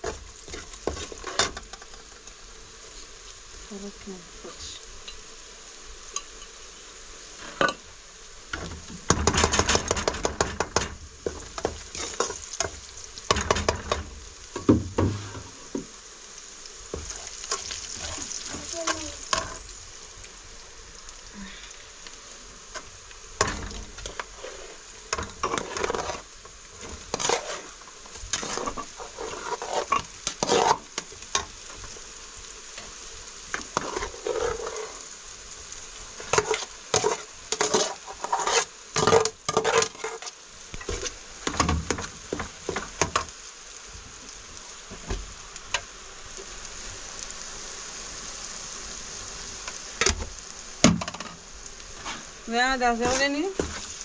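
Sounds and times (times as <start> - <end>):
utensil scraping cooking pot: 0.0 - 2.0, 8.6 - 15.8, 22.8 - 31.5, 33.5 - 35.1, 36.2 - 43.3, 52.0 - 54.0
faint steady sizzle: 0.0 - 54.0.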